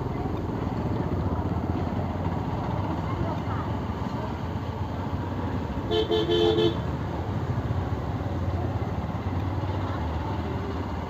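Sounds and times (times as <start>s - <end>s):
motorcycle engine and road noise: 0.0s - 11.0s
vehicle horn toots: 5.9s - 6.8s.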